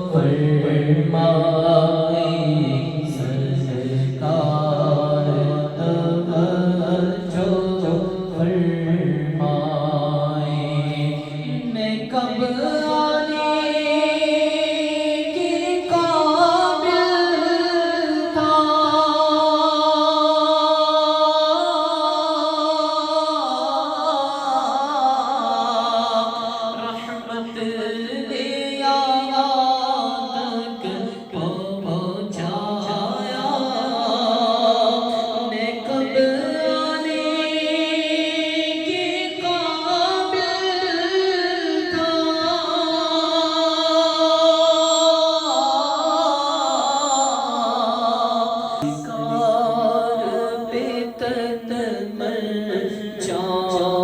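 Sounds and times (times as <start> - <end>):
person singing: 0.0 - 54.0.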